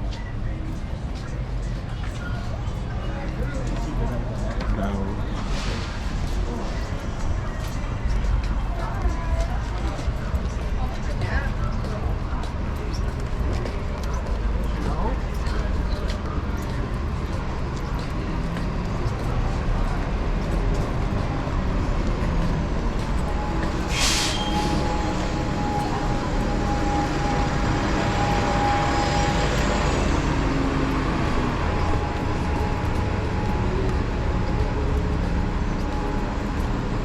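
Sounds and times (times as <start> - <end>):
road noise rumble: 0.0 - 37.0
short sharp hiss: 23.9 - 24.7.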